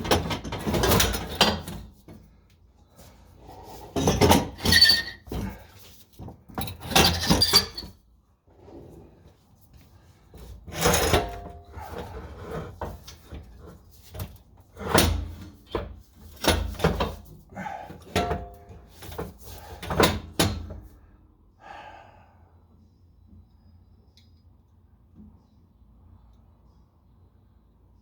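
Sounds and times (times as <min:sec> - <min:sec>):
metallic knocks and clanks: 0:18.0 - 0:20.8.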